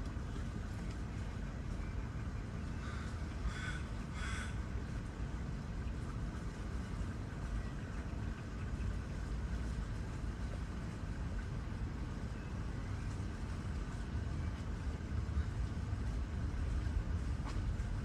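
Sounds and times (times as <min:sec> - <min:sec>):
low rumble of city traffic: 0:00.0 - 0:18.0
raven cawing: 0:02.8 - 0:04.6.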